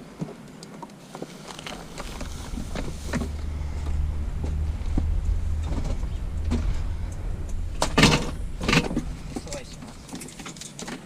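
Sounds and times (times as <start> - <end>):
vehicle engine rumbling: 1.2 - 11.0.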